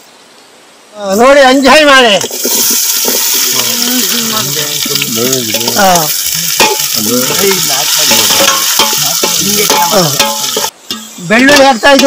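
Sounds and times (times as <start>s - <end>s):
onions and tomatoes sizzling in oil: 0.1s - 12.0s
metal ladle stirring in pot: 5.5s - 11.1s.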